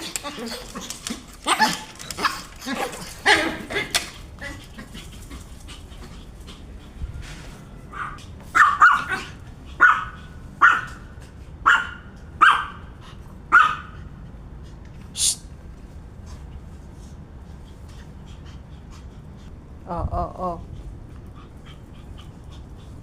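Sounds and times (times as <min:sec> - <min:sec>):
puppy barking: 0:07.9 - 0:12.9, 0:13.5 - 0:14.0.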